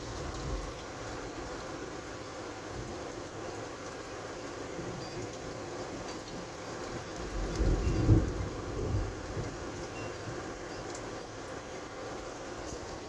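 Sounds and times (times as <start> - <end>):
steady rain: 0.0 - 13.0
low thunder rumble: 7.2 - 9.9.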